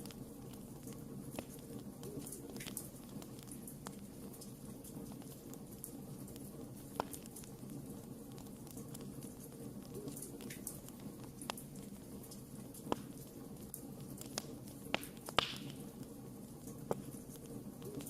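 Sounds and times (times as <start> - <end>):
sharp fire pops: 0.0 - 7.6, 9.9 - 16.1
wood fire crackling: 0.0 - 18.0.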